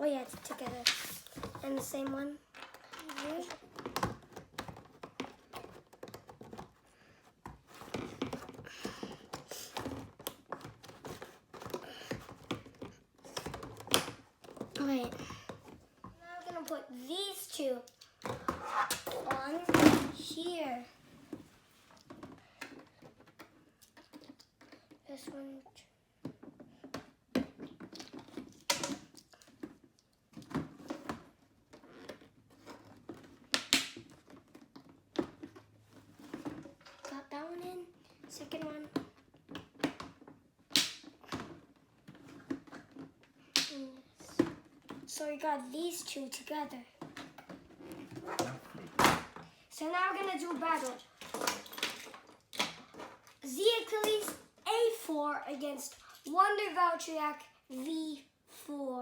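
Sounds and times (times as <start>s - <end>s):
plastic rattling and rustling: 0.0s - 25.4s, 26.2s - 37.3s, 37.9s - 43.4s, 46.3s - 56.3s.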